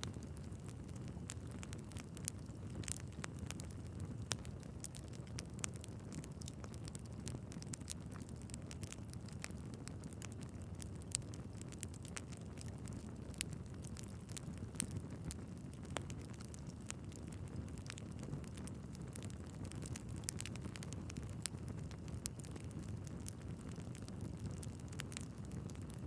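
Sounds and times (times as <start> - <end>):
logs crackling and popping: 0.0 - 26.0.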